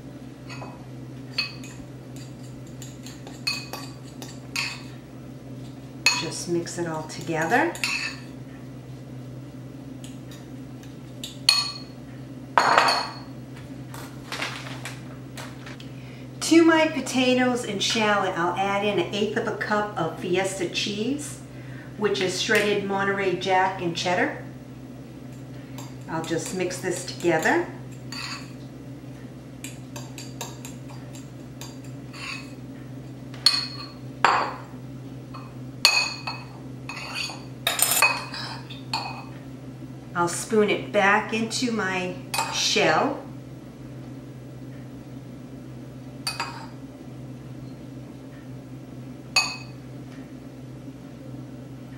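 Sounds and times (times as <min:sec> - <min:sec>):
utensil scraping a bowl: 0:36.9 - 0:37.4.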